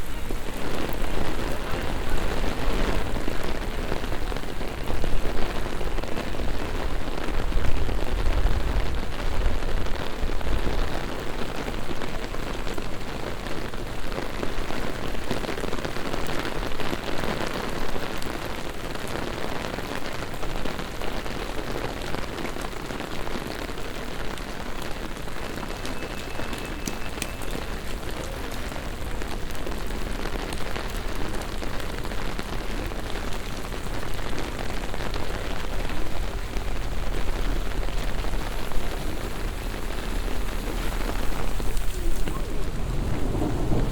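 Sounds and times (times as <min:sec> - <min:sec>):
heavy rain on pavement: 0:00.0 - 0:43.9
low rumble: 0:36.6 - 0:43.9.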